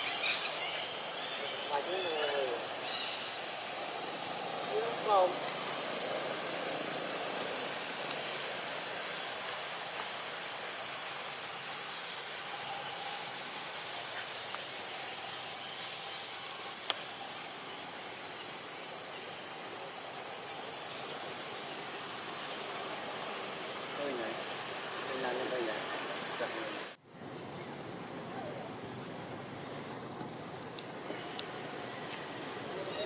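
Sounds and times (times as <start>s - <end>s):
high-pitched hiss: 0.0s - 33.0s
faint click: 16.8s - 17.0s.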